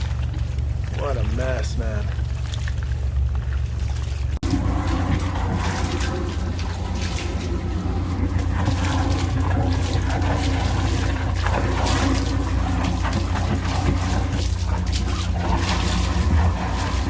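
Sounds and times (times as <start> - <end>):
engine humming: 0.0 - 17.0
water rushing and gurgling: 0.0 - 17.0
high-pressure water jetting: 4.4 - 17.0.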